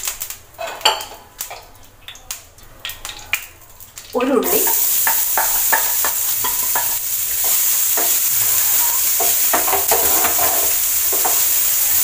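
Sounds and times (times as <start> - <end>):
onion sizzling in a pan: 0.0 - 12.0
utensil scraping a pan: 4.8 - 12.0.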